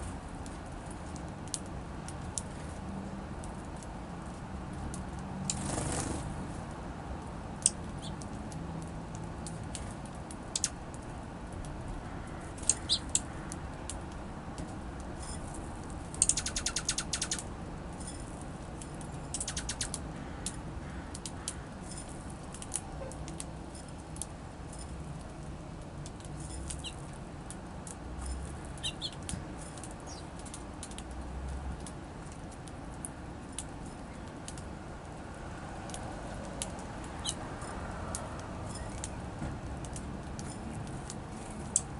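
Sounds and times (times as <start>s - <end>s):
fluttering wingbeats: 5.5s - 6.4s
songbirds chirping: 7.6s - 8.3s, 11.9s - 13.6s, 16.1s - 24.0s, 26.0s - 27.2s, 27.9s - 31.0s, 37.0s - 37.7s.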